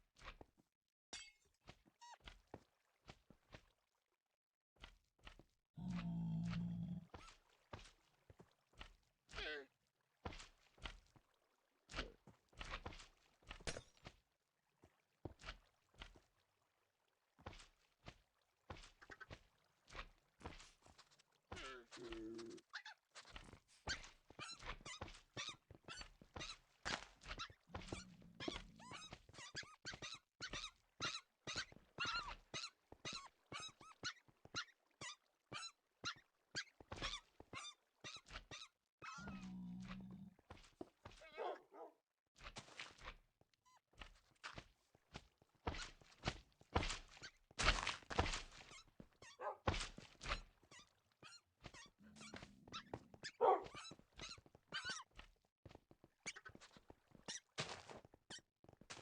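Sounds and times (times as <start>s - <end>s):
animal squeals and yelps: 27.4s - 40.2s, 48.7s - 49.6s, 50.7s - 55.1s
fox yelping and whining: 49.2s - 49.6s, 51.2s - 55.0s.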